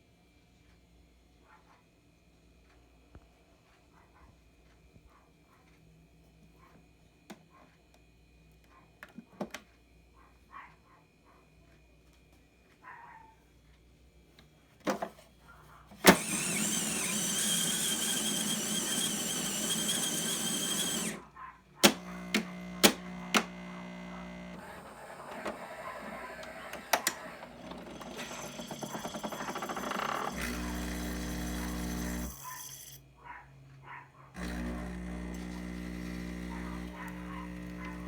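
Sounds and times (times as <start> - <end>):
motor whirring: 16.0 - 33.0, 34.4 - 38.0
buzzing hum: 22.0 - 24.6, 34.4 - 38.0.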